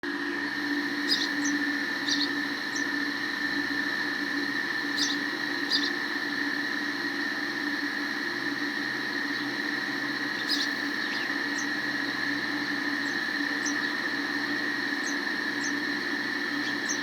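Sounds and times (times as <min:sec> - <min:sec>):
steady background hum: 0:00.0 - 0:17.0
sparrows chirping: 0:00.9 - 0:03.0, 0:04.8 - 0:06.1, 0:09.2 - 0:17.0.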